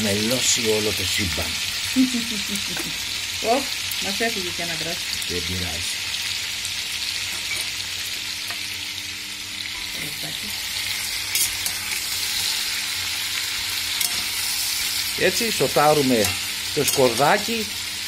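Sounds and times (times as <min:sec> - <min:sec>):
food sizzling in oil: 0:00.0 - 0:18.0
metal spoon stirring: 0:11.3 - 0:12.7, 0:13.9 - 0:14.8, 0:16.1 - 0:17.5.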